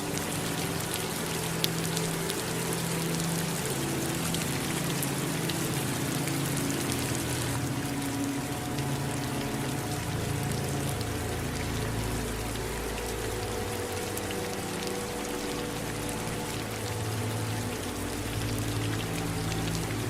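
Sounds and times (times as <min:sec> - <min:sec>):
running water: 0:00.0 - 0:20.0
steady rain falling: 0:00.0 - 0:20.0.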